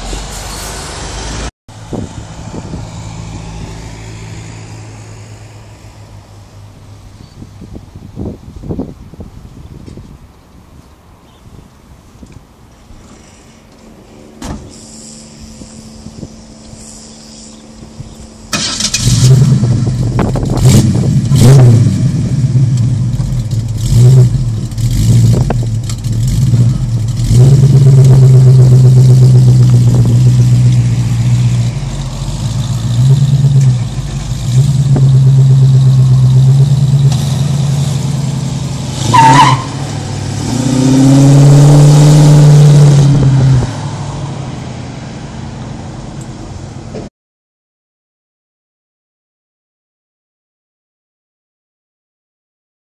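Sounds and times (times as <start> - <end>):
car engine revving: 14.7 - 46.2
tyre squeal: 39.0 - 39.8.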